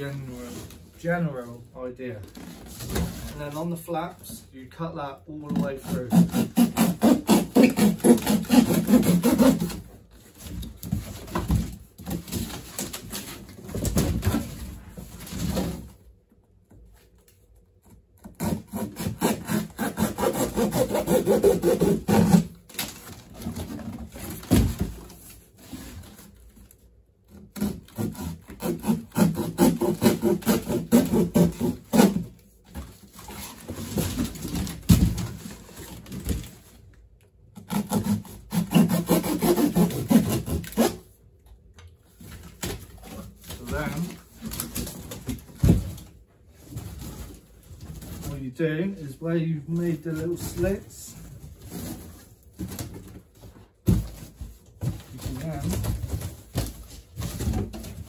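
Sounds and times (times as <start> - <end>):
blade sawing through cardboard: 5.6 - 14.6, 18.2 - 24.9, 27.3 - 32.4, 37.6 - 41.0.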